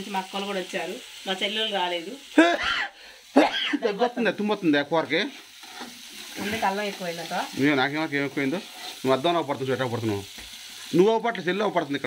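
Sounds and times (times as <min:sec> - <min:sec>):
curry frying in a pan: 0:00.0 - 0:12.0.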